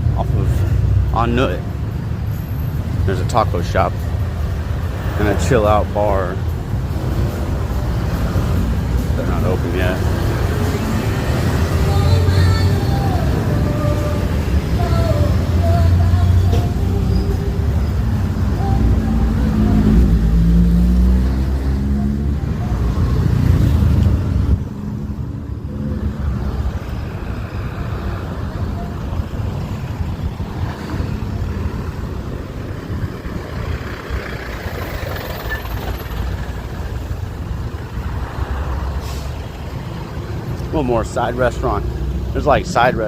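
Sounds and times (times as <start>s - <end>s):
street traffic noise: 0.0s - 43.0s
vehicle engine passing: 4.5s - 43.0s.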